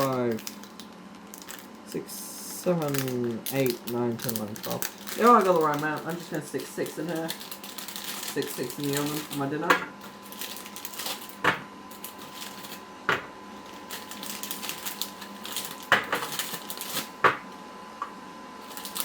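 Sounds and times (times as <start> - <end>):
frozen food clacking on tray: 2.6 - 17.5.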